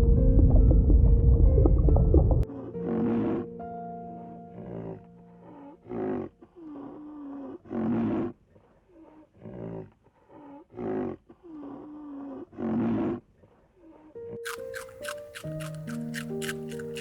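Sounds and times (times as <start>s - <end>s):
big cat roaring and growling: 5.8s - 8.3s.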